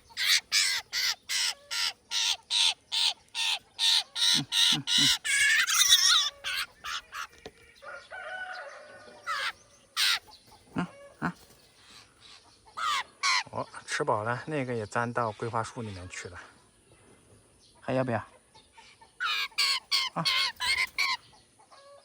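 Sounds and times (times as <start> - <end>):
young bird begging calls: 0.0 - 7.3, 9.3 - 10.3, 12.7 - 13.5, 19.2 - 21.2.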